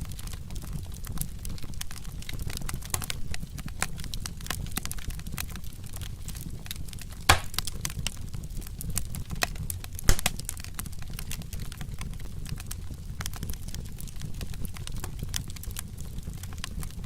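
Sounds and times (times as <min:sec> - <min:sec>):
wood fire crackling: 0:00.0 - 0:17.0
loud fire pops: 0:05.9 - 0:11.7.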